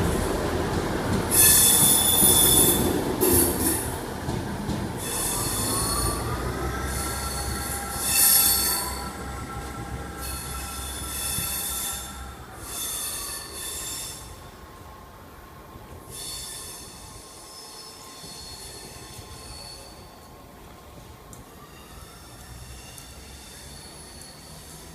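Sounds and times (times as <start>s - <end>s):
diesel train engine whine: 0.0s - 24.9s
high-pitched wheel squeal: 1.3s - 3.8s, 5.0s - 14.3s.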